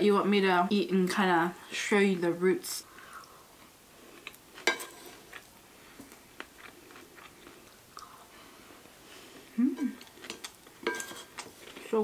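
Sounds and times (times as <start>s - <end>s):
spoon scraping ceramic bowl: 4.6s - 5.2s, 10.3s - 11.5s
chewing rice: 6.1s - 8.2s.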